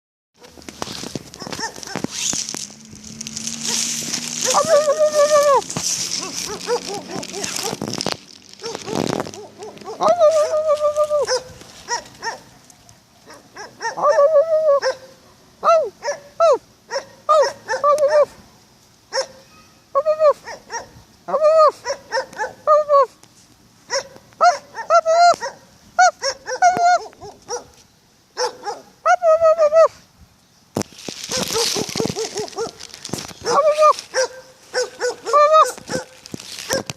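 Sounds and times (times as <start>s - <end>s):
dog barking and yelping: 1.3s - 2.1s, 3.6s - 7.9s, 8.6s - 12.6s, 13.2s - 18.4s, 19.1s - 23.1s, 23.9s - 27.8s, 28.4s - 30.0s, 31.3s - 36.9s
dog whining: 4.4s - 7.8s, 8.6s - 12.4s, 33.4s - 36.1s.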